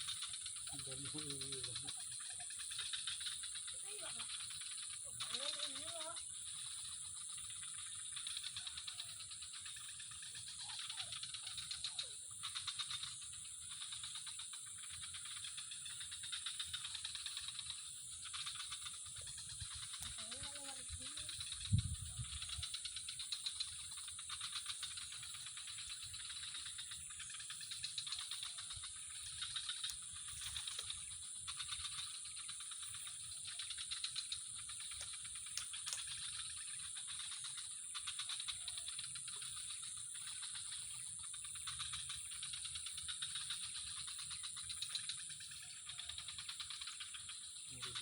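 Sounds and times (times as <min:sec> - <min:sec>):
insects trilling: 0:00.0 - 0:48.0.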